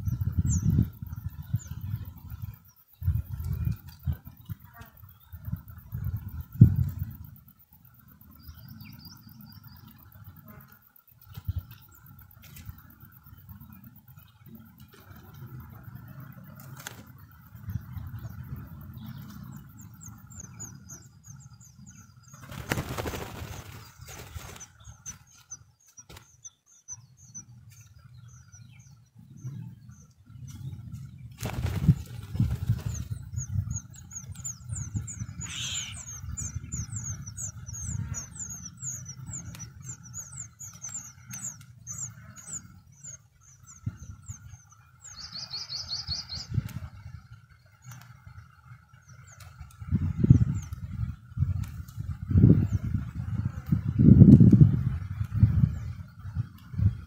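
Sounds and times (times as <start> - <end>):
wings flapping: 16.5 - 17.3, 22.3 - 26.5, 31.3 - 34.5
thin high bird chirps: 31.4 - 46.6.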